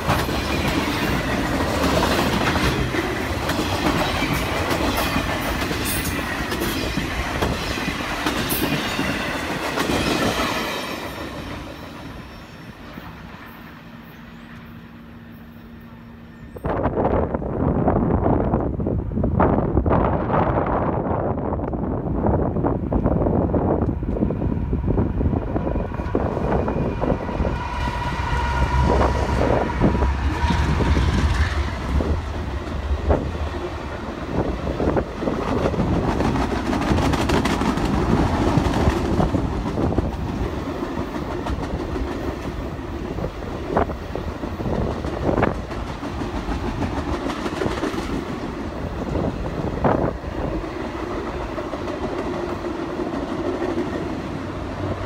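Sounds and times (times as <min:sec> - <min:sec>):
train wheel clatter: 0:00.0 - 0:12.2, 0:25.8 - 0:55.0
diesel locomotive engine rumble: 0:00.0 - 0:55.0
train horn: 0:26.8 - 0:32.1.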